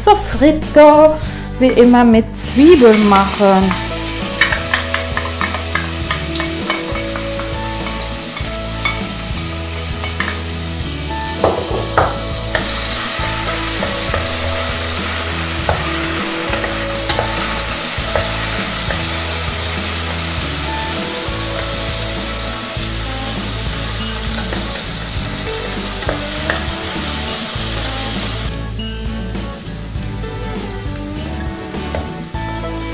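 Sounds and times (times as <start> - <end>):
onion sizzling in oil: 2.4 - 32.9
spoon knocking on pot: 3.7 - 8.0, 11.4 - 12.8, 15.6 - 19.1.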